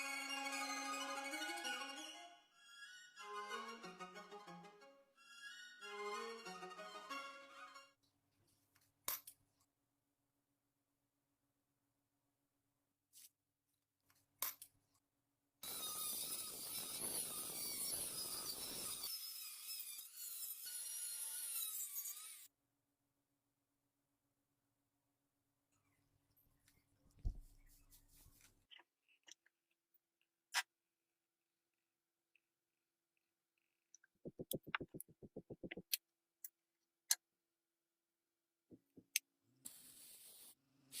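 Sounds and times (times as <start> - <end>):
rotary tool whining and grinding: 15.6 - 22.5.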